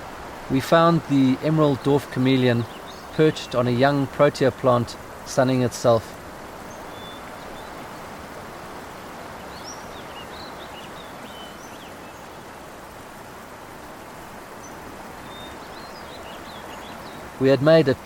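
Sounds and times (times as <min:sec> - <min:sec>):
outdoor ambient hiss: 0:00.0 - 0:18.0
faint bird chirps: 0:06.6 - 0:07.8, 0:09.3 - 0:12.5, 0:14.0 - 0:17.3.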